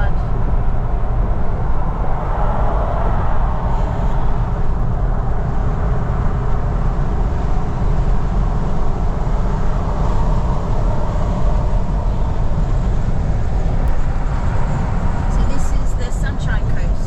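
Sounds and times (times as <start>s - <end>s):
road and engine noise in cabin: 0.0s - 17.0s.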